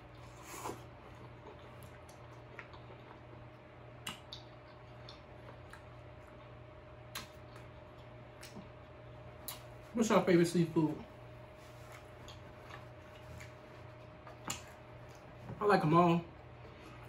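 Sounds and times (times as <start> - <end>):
closed-mouth chewing: 0.0 - 9.8, 11.8 - 15.4
faint steady hum: 0.0 - 17.0
slurp: 0.2 - 0.9
wet mouth clicks: 14.3 - 14.7.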